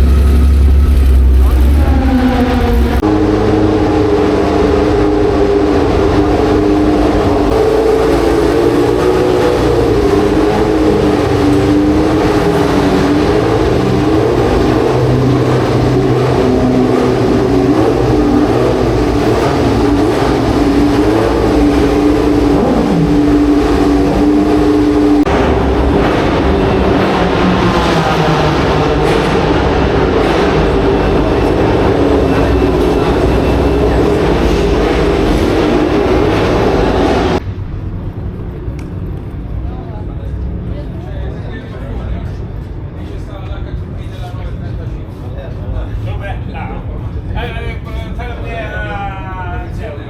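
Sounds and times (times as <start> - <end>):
racing car engines at high revs: 0.0 - 37.4.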